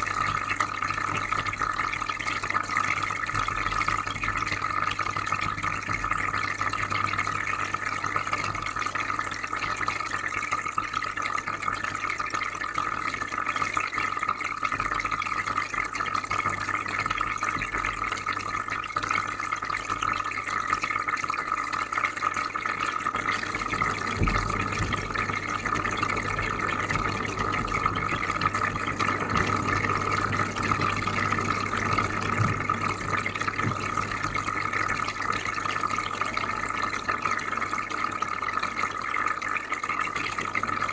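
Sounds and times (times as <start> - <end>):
water bubbling and trickling: 19.5 - 40.9.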